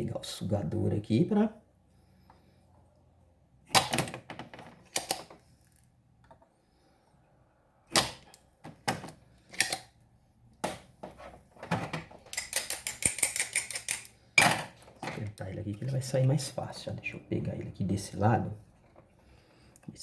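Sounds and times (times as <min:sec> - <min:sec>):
plastic tool clicks and clacks: 0:03.7 - 0:05.4, 0:11.8 - 0:15.2.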